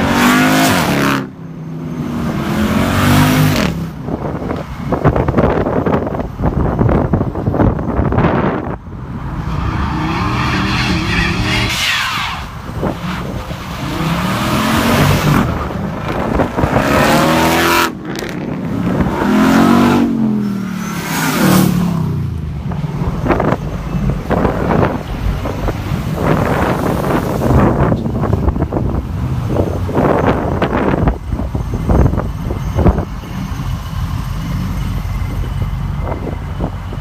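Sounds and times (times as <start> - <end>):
engines revving and accelerating: 0.0 - 4.2, 8.6 - 32.2.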